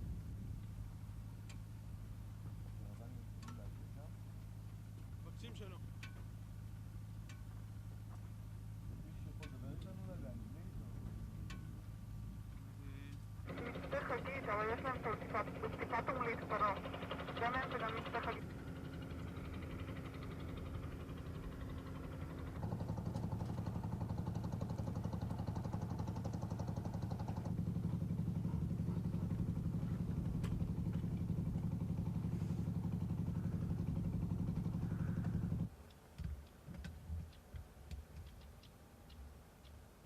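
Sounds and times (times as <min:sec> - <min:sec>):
engine running: 0:00.0 - 0:35.9
faint clicks and knocks: 0:35.2 - 0:40.0.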